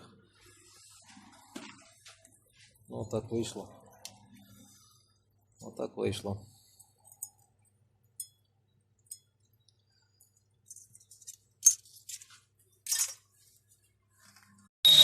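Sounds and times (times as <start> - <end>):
metal tools clinking: 10.3 - 13.2.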